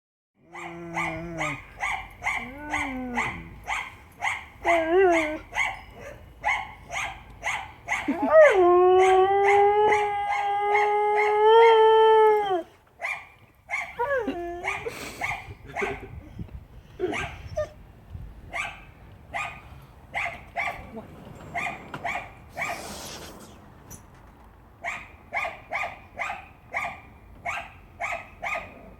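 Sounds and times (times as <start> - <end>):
dog howling: 0.4 - 3.6, 4.6 - 5.8, 7.9 - 12.7
dog barking: 0.5 - 8.2, 14.7 - 16.1, 18.6 - 19.6, 20.2 - 20.9, 21.5 - 22.8, 24.8 - 28.8.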